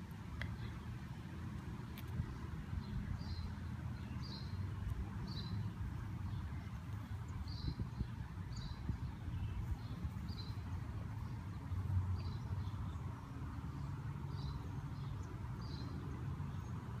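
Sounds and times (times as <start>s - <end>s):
small bird chirping: 2.0s - 13.0s.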